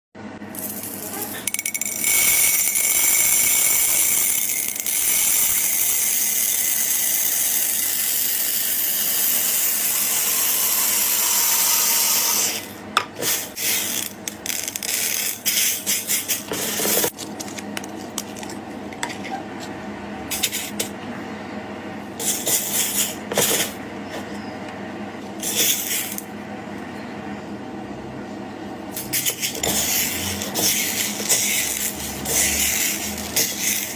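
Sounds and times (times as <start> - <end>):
beads hissing rattle: 25.4 - 26.2, 29.2 - 33.9.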